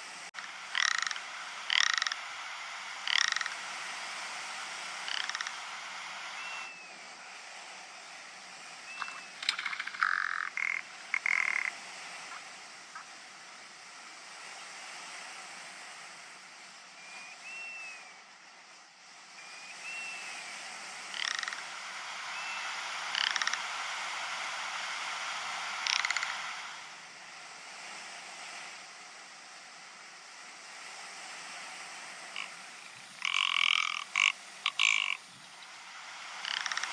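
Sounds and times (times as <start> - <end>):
steady hiss: 0.0 - 36.9
bird croaking rattle calls: 0.4 - 3.7, 5.0 - 6.7, 8.9 - 12.4, 21.1 - 21.8, 22.4 - 23.8, 25.7 - 26.7, 32.4 - 36.9
faint thin whistle notes: 8.7 - 9.4, 16.9 - 18.2, 19.3 - 20.5.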